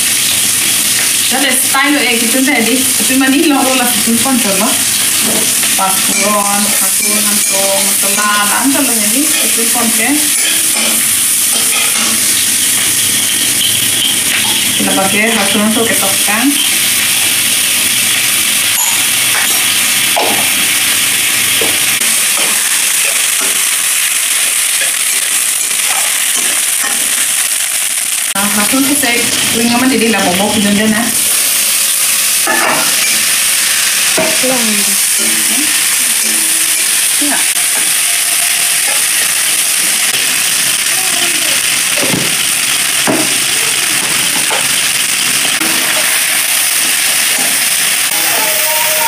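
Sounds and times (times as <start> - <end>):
onions frying in oil: 0.0 - 49.0.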